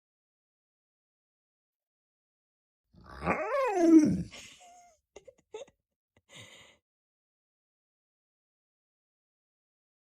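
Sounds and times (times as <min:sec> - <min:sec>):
dog whining grumble: 0:03.0 - 0:04.4.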